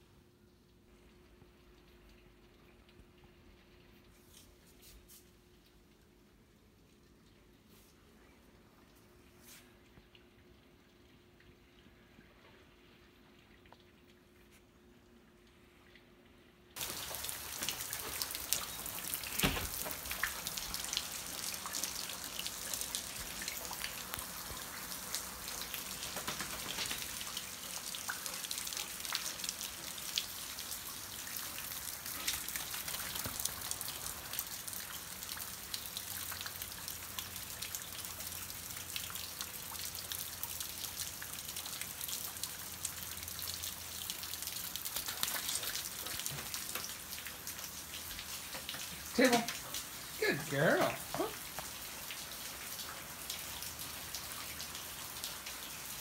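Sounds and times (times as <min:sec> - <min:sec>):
steady rain falling: 0:16.7 - 0:56.0.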